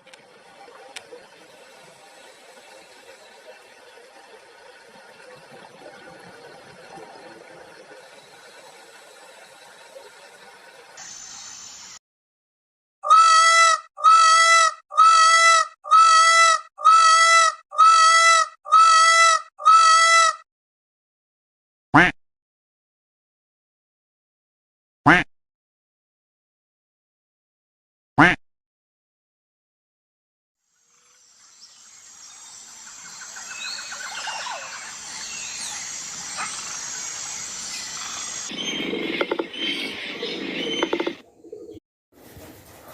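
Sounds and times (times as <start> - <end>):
steady high hiss: 8.0 - 12.0
high-pitched animal call: 13.0 - 20.4
birds chirping: 31.4 - 41.8.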